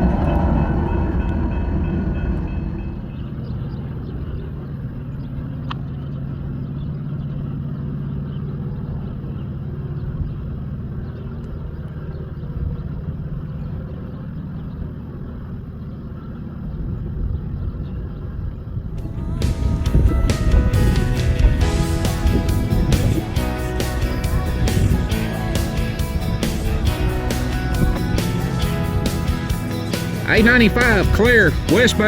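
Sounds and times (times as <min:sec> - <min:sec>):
diesel locomotive rumble: 0:00.0 - 0:14.0, 0:18.8 - 0:32.0.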